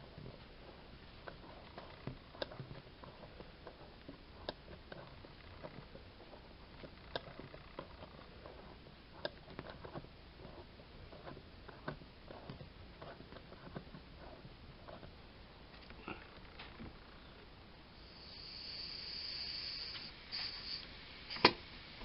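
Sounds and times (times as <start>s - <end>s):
small mechanical clicks and ticks: 1.2s - 15.1s.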